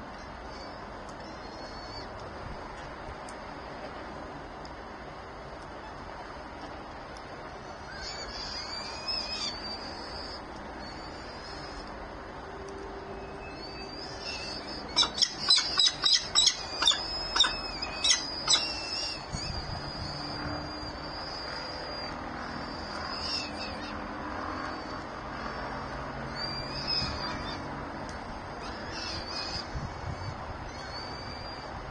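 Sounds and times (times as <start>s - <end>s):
birds calling: 7.6s - 12.4s, 13.0s - 31.9s.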